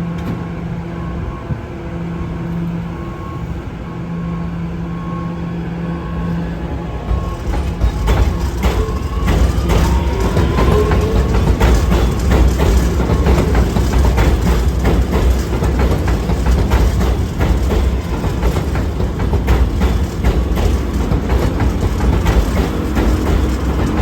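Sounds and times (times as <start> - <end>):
subway train rumbling: 0.0 - 24.0
wheels clicking over rail joints: 7.1 - 24.0.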